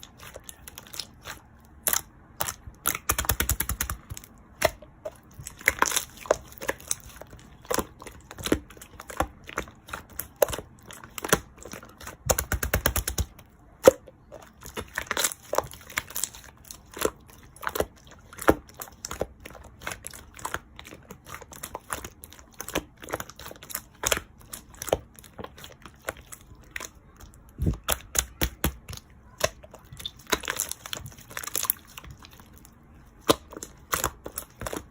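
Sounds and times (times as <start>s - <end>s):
taps and clicks of small objects: 2.4s - 4.9s.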